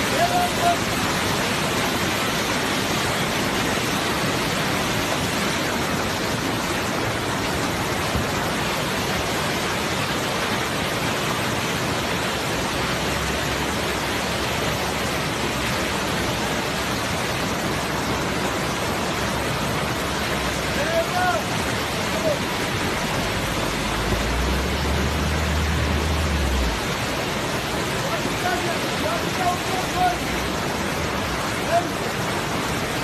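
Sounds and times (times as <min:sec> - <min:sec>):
river water rushing: 0:00.0 - 0:33.0.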